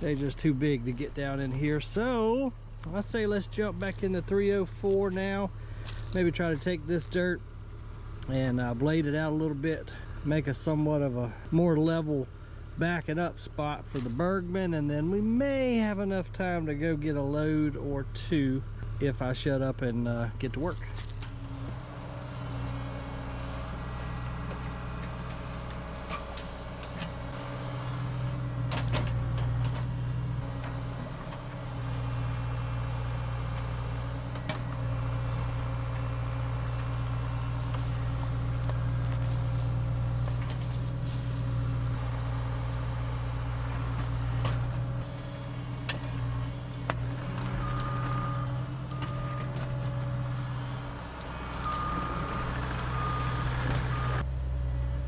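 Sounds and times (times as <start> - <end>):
excavator diesel engine running: 0.0 - 55.0
reversing alarm beeping: 47.4 - 49.6, 51.4 - 54.2.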